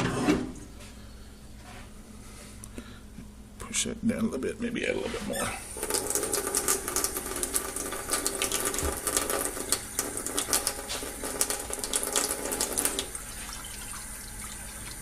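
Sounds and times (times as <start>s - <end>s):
water pouring into container: 5.6s - 15.0s.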